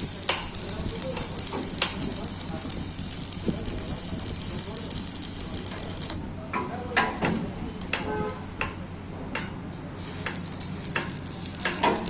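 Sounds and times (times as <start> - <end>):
metal taps and clanks: 6.5 - 9.6.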